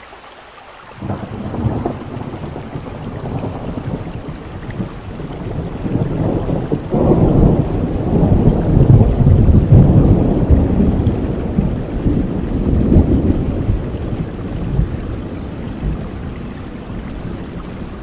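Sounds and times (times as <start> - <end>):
steady rain: 0.0 - 18.0
low roll of thunder: 1.0 - 18.0.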